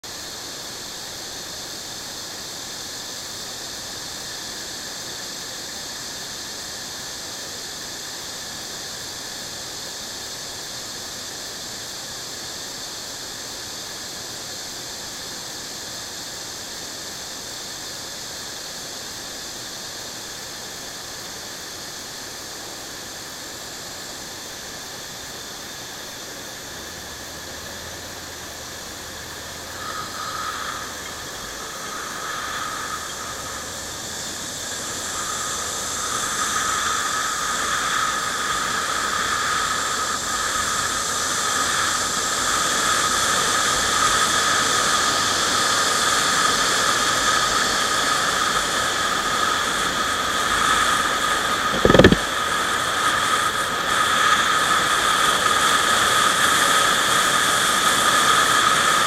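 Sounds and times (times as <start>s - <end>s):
vehicle travel hiss: 0.0s - 59.0s
high whine: 24.2s - 44.0s, 48.2s - 55.0s.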